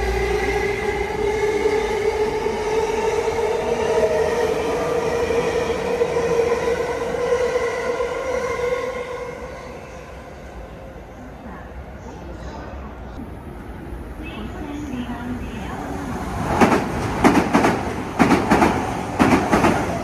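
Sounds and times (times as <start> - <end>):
electric train whine: 0.0 - 11.4
train running noise: 11.0 - 20.0.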